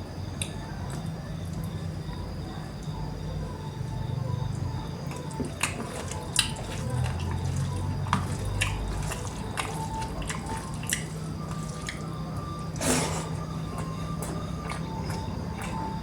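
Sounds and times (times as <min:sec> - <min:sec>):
chewing and mouth clicks: 0:04.5 - 0:16.0.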